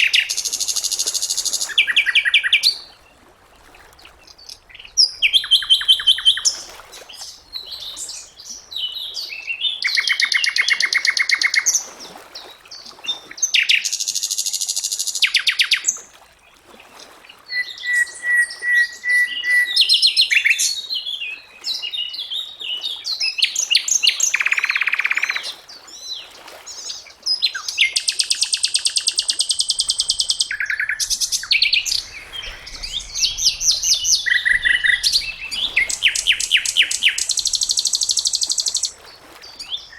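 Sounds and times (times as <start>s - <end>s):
flycatcher singing trills and whistles: 27.5s - 39.0s.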